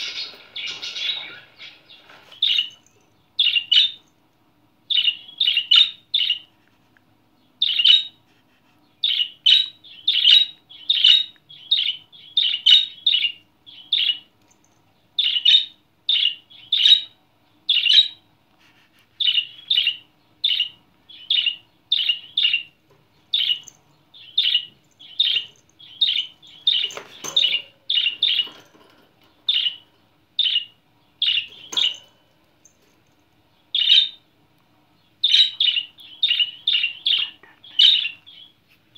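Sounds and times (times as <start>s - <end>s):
budgerigar chirping: 4.9s - 6.5s, 15.2s - 18.2s, 33.7s - 34.2s, 35.2s - 38.6s.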